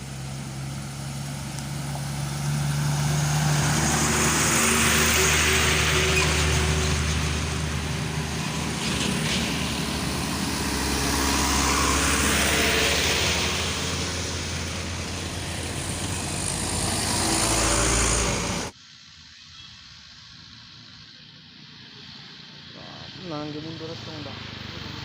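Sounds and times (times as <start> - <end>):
heavy truck engine under load: 0.0 - 18.8
road noise: 0.0 - 25.0.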